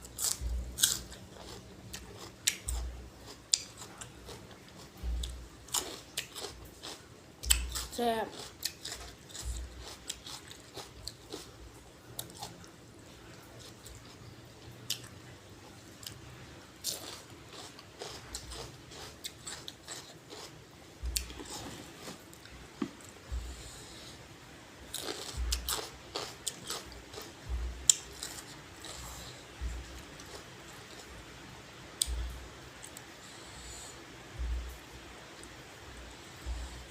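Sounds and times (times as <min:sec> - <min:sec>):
chewing crunchy vegetables: 0:00.0 - 0:24.2, 0:24.9 - 0:31.2
soft low thumps: 0:00.4 - 0:00.9, 0:05.0 - 0:05.6, 0:21.0 - 0:24.0, 0:25.4 - 0:25.8, 0:27.4 - 0:28.2, 0:29.6 - 0:30.2, 0:32.1 - 0:32.6, 0:34.3 - 0:34.9, 0:36.0 - 0:36.9.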